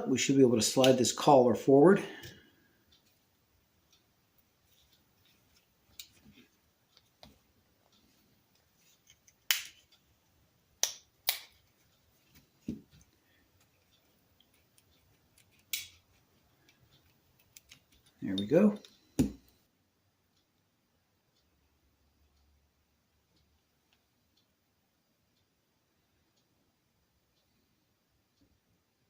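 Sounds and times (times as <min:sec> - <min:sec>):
small metal parts clicking and tapping: 0:10.8 - 0:19.5.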